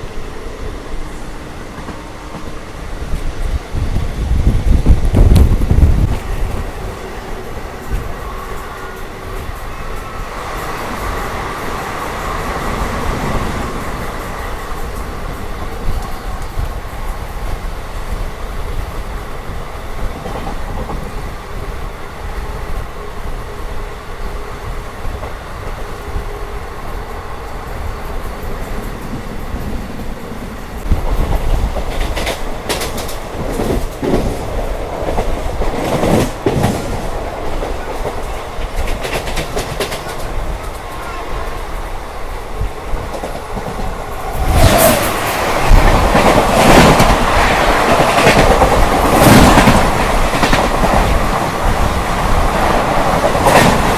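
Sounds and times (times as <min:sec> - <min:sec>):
train running on rails: 0:00.0 - 0:53.9
wheel clickety-clack: 0:30.8 - 0:41.2, 0:42.6 - 0:53.9.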